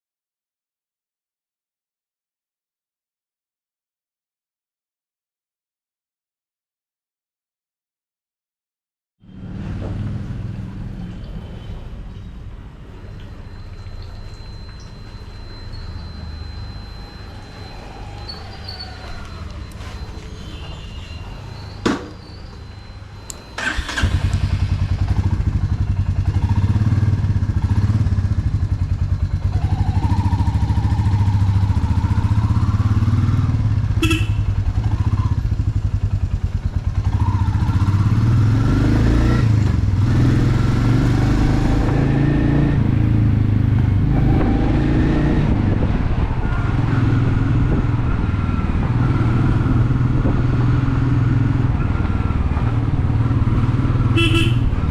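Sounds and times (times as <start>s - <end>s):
motorcycle engine accelerating: 23.6s - 54.9s.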